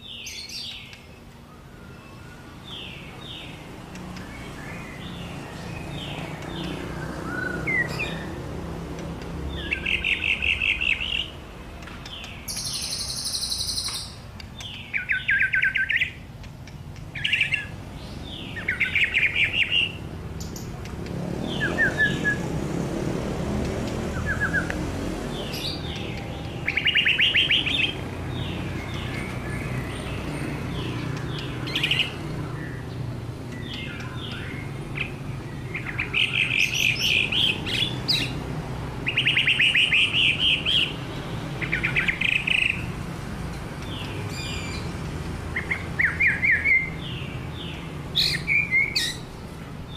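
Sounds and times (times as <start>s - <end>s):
songbird trills and whistles: 4.2s - 8.4s, 12.0s - 16.2s, 24.1s - 24.8s, 25.4s - 29.7s, 39.1s - 41.0s, 48.2s - 49.3s.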